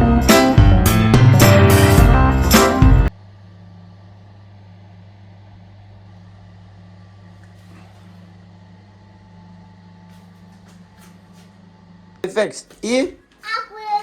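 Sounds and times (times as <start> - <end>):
exhaust fan motor humming: 0.0 - 14.0.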